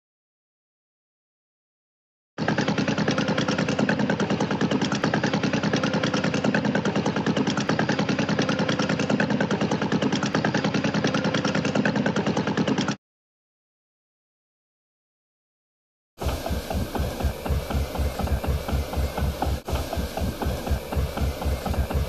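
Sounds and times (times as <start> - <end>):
tractor engine chugging: 2.4 - 13.0, 16.2 - 22.0.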